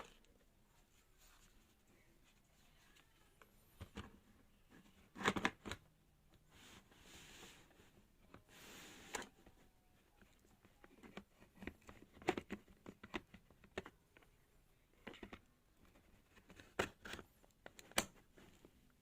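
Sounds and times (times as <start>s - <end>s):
clicks taps and rustling of handling: 10.2s - 18.8s.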